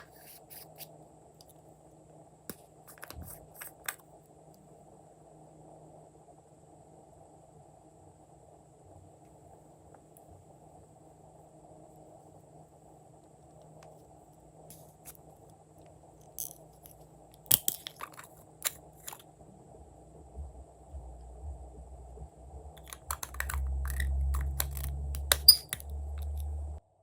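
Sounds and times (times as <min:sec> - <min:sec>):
low rumbling handling noise: 0:18.9 - 0:26.8.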